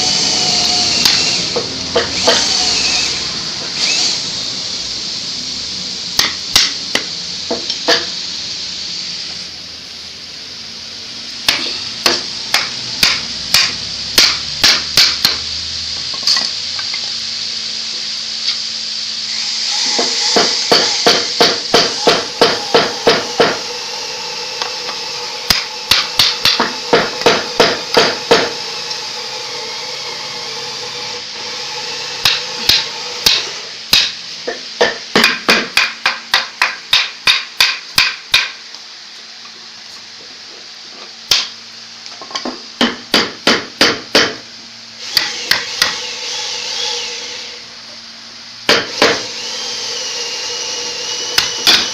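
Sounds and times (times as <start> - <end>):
hammer strikes: 6.2 - 8.2, 11.5 - 15.5, 19.9 - 23.6, 25.5 - 28.6, 32.2 - 38.6, 41.3 - 41.5, 42.3 - 44.4, 45.1 - 46.0, 48.7 - 49.3, 51.4 - 51.9.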